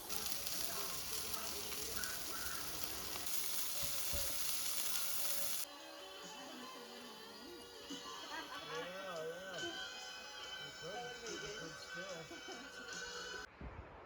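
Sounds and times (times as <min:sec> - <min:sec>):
steady hiss: 0:00.0 - 0:05.7
faint music: 0:00.0 - 0:14.0.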